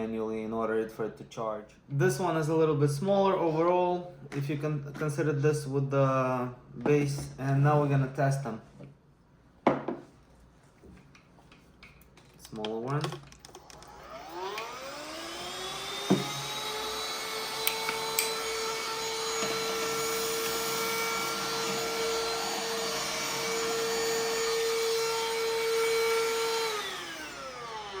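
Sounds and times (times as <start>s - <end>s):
handheld vacuum motor whine: 13.4s - 28.0s.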